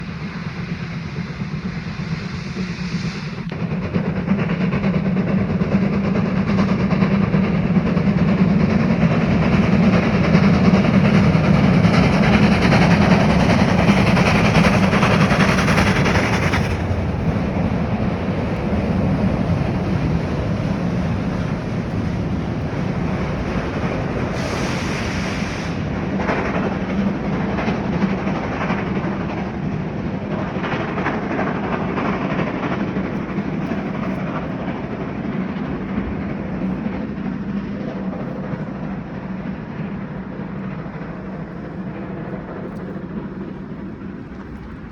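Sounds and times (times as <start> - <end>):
train rumbling on rails: 0.0 - 44.9
train wheel clicks: 3.4 - 38.5.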